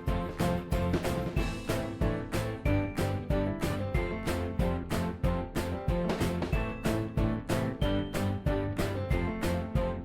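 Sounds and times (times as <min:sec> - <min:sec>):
background music with quick beat: 0:00.0 - 0:10.0.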